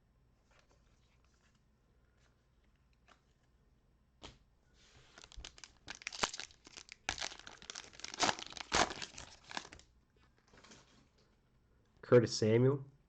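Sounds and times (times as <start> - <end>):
wrapper crackling and tearing: 5.1 - 9.9.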